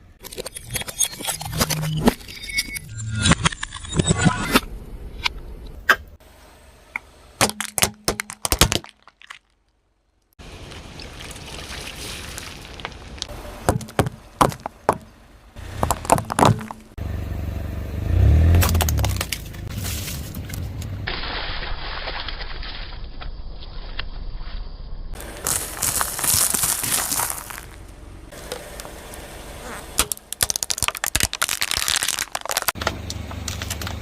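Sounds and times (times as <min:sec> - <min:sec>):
objects cracking under tyre: 0:07.4 - 0:09.8, 0:12.0 - 0:15.1, 0:15.7 - 0:17.0, 0:18.4 - 0:22.8, 0:25.2 - 0:34.0
car rolling rumble: 0:10.4 - 0:21.1, 0:25.1 - 0:34.0.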